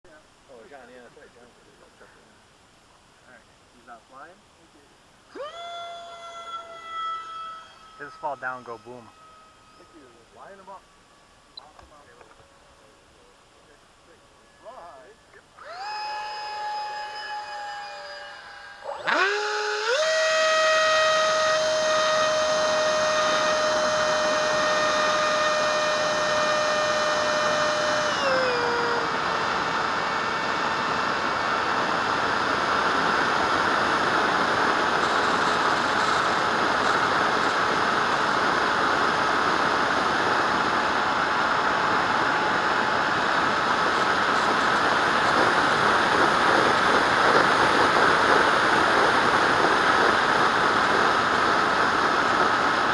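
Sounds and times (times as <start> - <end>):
electric fan high whine: 0.1 - 52.9
air rushing through fan: 13.2 - 52.9.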